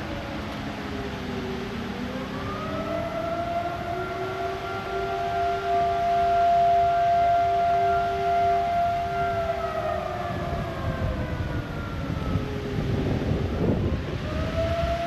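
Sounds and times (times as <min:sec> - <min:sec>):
wailing warning siren: 0:00.0 - 0:15.0.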